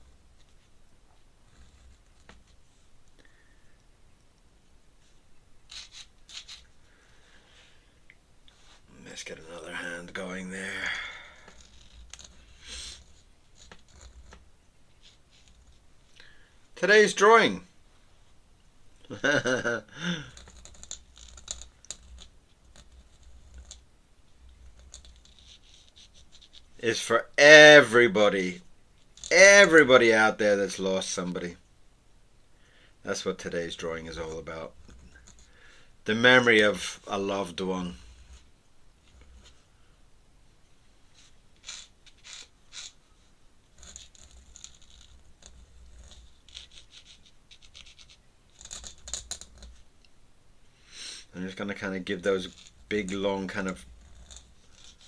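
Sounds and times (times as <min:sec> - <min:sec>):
pen scratching on paper: 0:01.4 - 0:02.6, 0:05.7 - 0:06.8, 0:11.2 - 0:15.8, 0:20.3 - 0:26.8, 0:34.2 - 0:35.7, 0:37.2 - 0:39.7, 0:41.2 - 0:49.9, 0:52.4 - 0:55.0.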